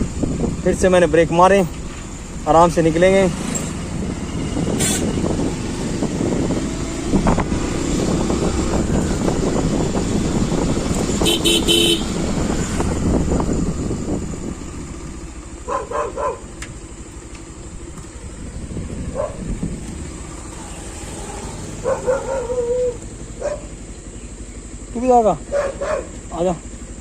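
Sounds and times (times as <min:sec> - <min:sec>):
motorcycle engine running: 0:00.0 - 0:27.0
road and wind noise: 0:00.0 - 0:27.0
vehicle horn tooting: 0:04.8 - 0:05.2, 0:11.2 - 0:12.3.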